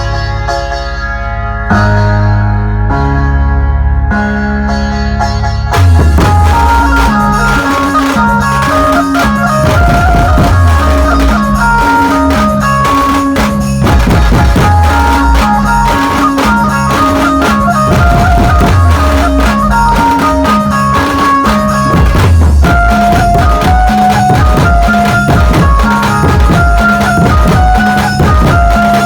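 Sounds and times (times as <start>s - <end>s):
bass line: 0.0s - 29.0s
keyboard-led band music: 0.0s - 29.0s
heavy drum beat: 5.8s - 29.0s.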